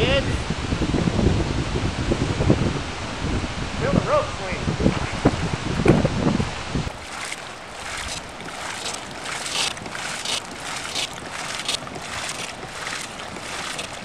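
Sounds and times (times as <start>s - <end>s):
wind buffeting microphone: 0.0s - 14.0s
river water rushing and splashing: 6.9s - 14.0s.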